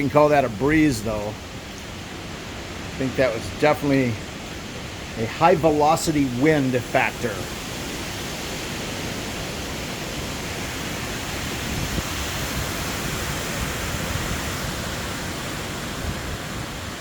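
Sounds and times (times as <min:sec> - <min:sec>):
strong wind rushing: 0:04.9 - 0:17.0.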